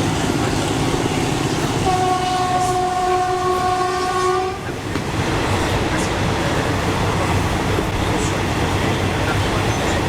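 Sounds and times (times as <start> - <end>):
train rumbling on rails: 0.0 - 10.0
train horn blast: 1.8 - 4.7.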